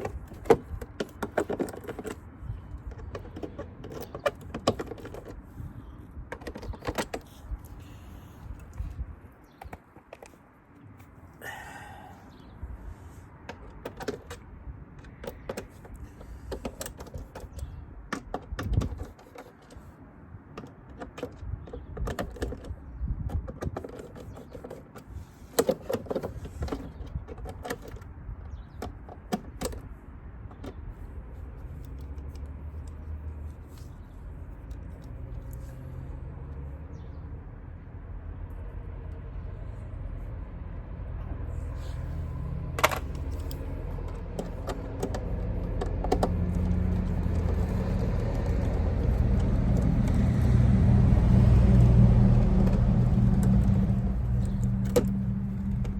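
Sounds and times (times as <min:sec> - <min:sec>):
hands handling small hard parts: 0:42.8 - 0:50.6.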